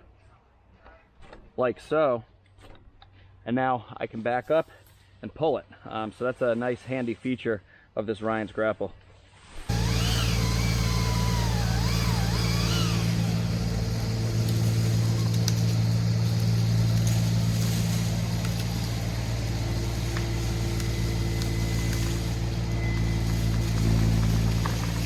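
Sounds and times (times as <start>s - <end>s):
skid steer engine running: 9.7s - 25.0s
wavering high whistle: 9.7s - 25.0s.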